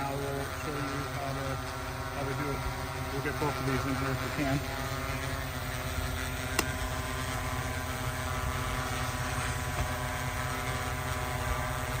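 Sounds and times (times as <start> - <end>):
drone propellers humming: 0.0 - 12.0
sharp click: 6.5 - 6.8.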